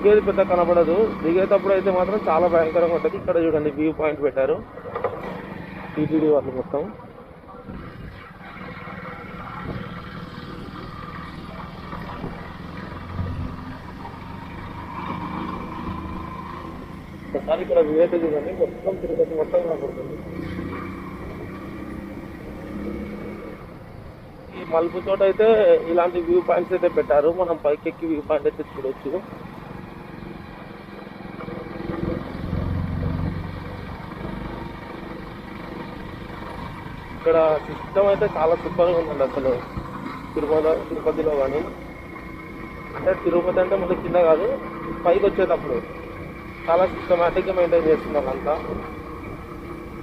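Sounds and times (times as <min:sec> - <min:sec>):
motorcycle engine running: 0:00.0 - 0:03.9, 0:29.2 - 0:50.0
road and wind noise: 0:00.0 - 0:50.0.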